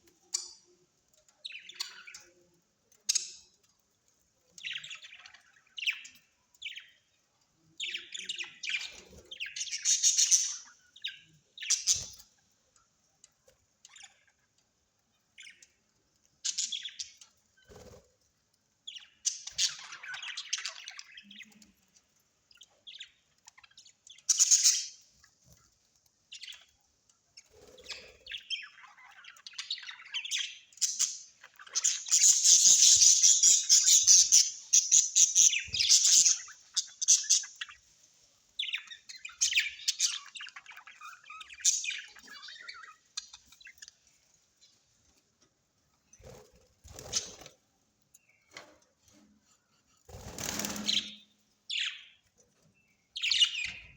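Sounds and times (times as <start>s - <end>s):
birds chirping and squawking: 0.2s - 2.4s, 7.8s - 12.5s, 15.4s - 18.1s, 18.8s - 25.6s, 27.4s - 37.9s, 38.5s - 45.2s, 46.0s - 53.9s.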